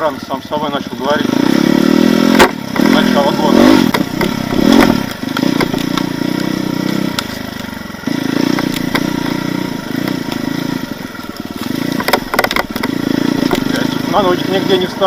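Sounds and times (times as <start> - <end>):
motorcycle engine running: 0.0 - 15.0
knocks and clatter: 3.8 - 7.7, 8.4 - 14.0.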